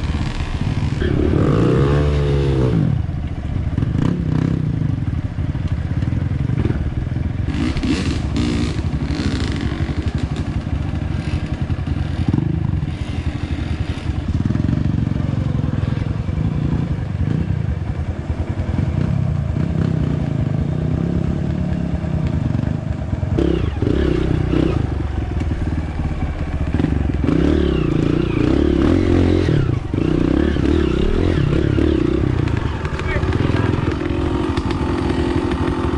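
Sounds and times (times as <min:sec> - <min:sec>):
motorcycle engine running: 0:00.0 - 0:35.9.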